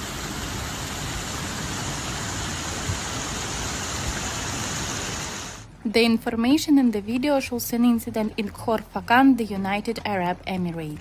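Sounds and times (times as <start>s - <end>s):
heavy rain falling: 0.0s - 5.7s.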